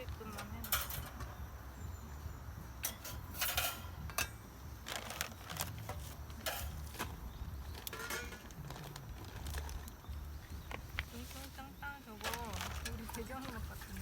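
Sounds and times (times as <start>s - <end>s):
dishes and utensils clinking: 0.0s - 1.5s, 2.8s - 9.8s.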